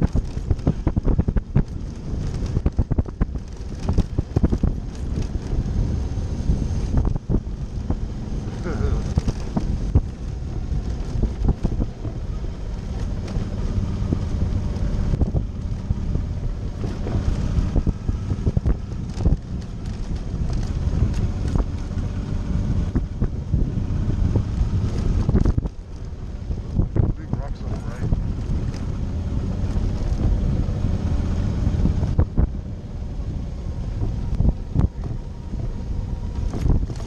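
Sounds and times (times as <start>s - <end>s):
motorcycle engine running: 0.0s - 37.0s
wind buffeting microphone: 0.0s - 37.0s
knocks and rattles: 9.0s - 12.2s.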